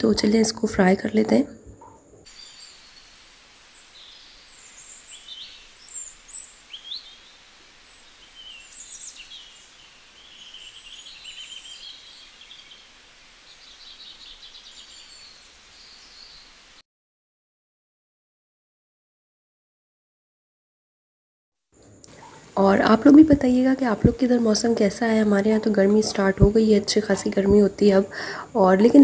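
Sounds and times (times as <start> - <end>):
small birds chirping: 1.0 - 16.8
steady hiss: 2.0 - 16.8, 21.8 - 29.0.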